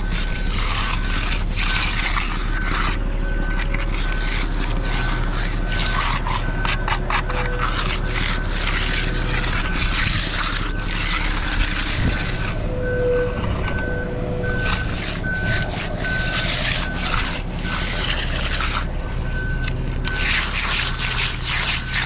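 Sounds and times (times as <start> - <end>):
diesel engine running: 0.0 - 22.0
backup alarm beeping: 2.4 - 4.2, 12.0 - 20.4.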